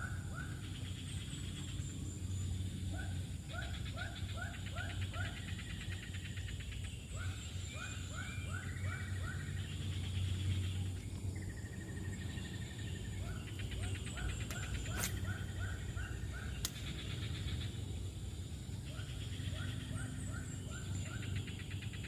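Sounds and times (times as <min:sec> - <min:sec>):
low steady hum: 0:00.0 - 0:22.0
sharp clicks: 0:16.6 - 0:17.0.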